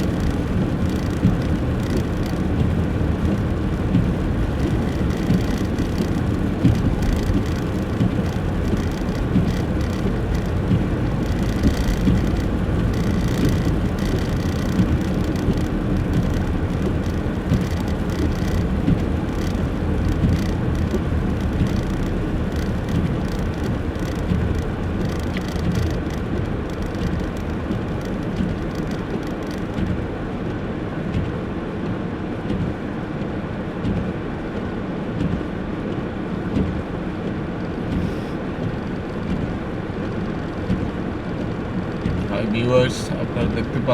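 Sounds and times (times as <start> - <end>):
car engine and tyre rumble: 0.0 - 43.9.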